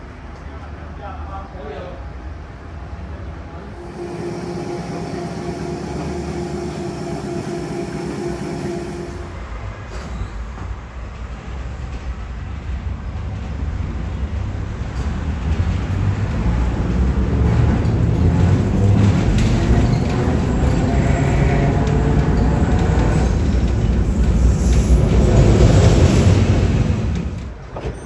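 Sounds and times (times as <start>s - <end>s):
tram rumbling on rails: 3.5s - 28.0s
faint whine rising in pitch: 3.6s - 9.6s.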